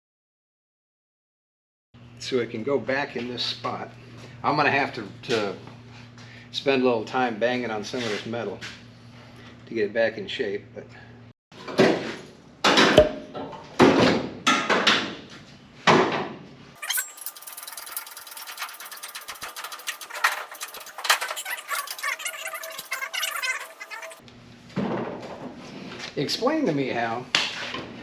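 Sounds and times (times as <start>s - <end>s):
thin rapid ticking: 16.8s - 24.2s.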